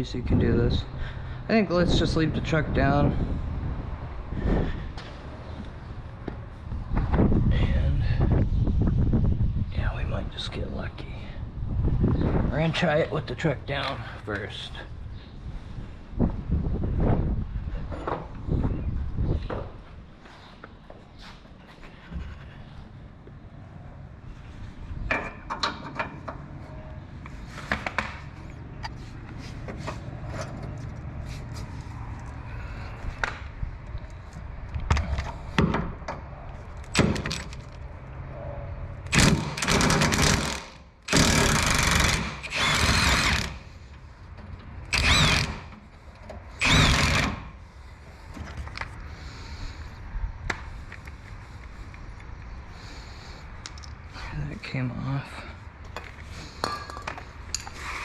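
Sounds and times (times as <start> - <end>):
tools clicking and knocking: 25.1 - 26.4
impact wrench bursts: 39.1 - 43.7, 44.9 - 45.8, 46.5 - 47.6.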